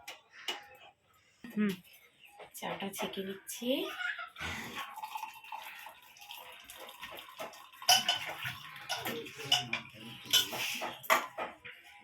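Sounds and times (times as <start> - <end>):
tea pouring into a cup: 4.7 - 11.0
metal and crockery clinks: 7.4 - 11.6.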